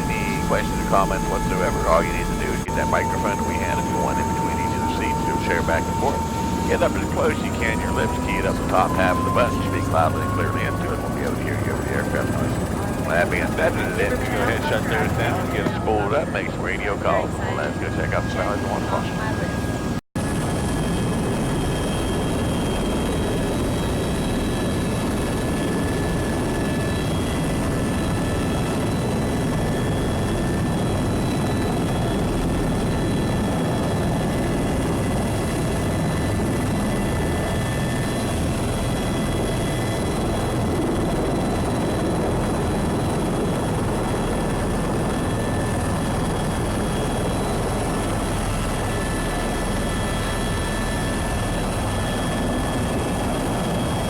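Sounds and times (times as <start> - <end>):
high whining tones: 0.0 - 20.0
helicopter engine and rotor: 0.0 - 54.0.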